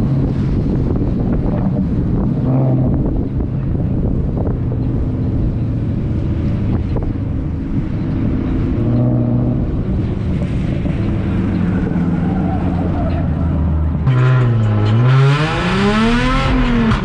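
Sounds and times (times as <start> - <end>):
wind buffeting microphone: 0.0 - 14.0
car engines revving: 0.0 - 17.0.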